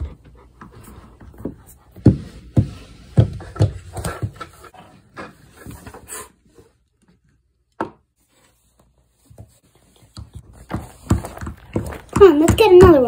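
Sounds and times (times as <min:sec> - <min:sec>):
plastic toys tapping and scraping on floor: 0:09.4 - 0:13.0.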